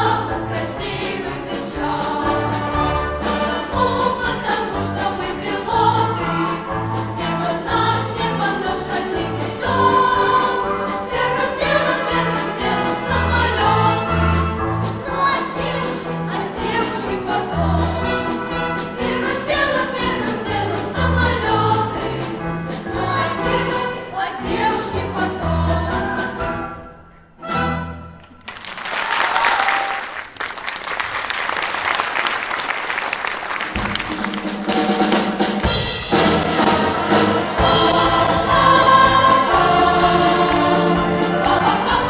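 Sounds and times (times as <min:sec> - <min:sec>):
voices singing: 0:00.0 - 0:26.8, 0:36.8 - 0:42.0
pop orchestra playing: 0:00.0 - 0:28.3, 0:33.7 - 0:42.0
drum beat: 0:33.7 - 0:42.0.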